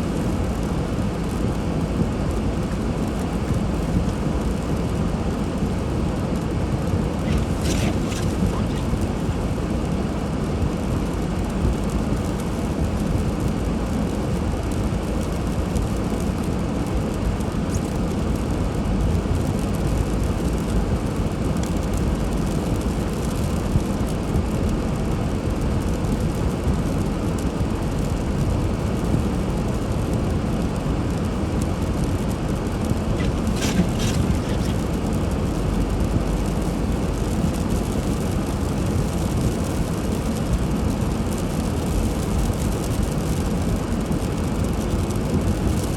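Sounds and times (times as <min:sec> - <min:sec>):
car engine and tyre noise: 0:00.0 - 0:45.9
faint clicks: 0:33.2 - 0:35.1.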